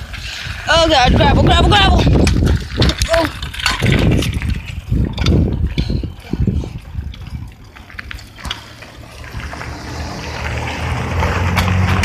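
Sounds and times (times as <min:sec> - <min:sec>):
bicycle rolling over gravel: 0:00.0 - 0:12.0
clicks and rattles: 0:02.1 - 0:08.8.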